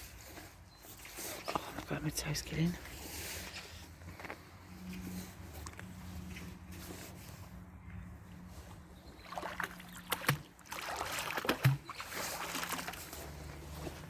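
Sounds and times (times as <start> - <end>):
water splashing and sloshing: 8.4 - 14.0.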